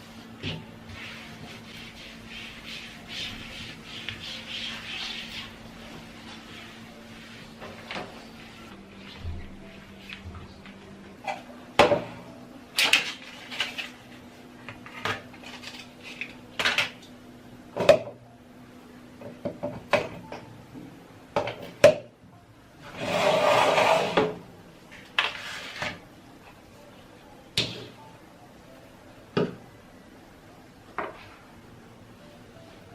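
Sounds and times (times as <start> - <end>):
dishes and utensils clinking: 11.2 - 12.2.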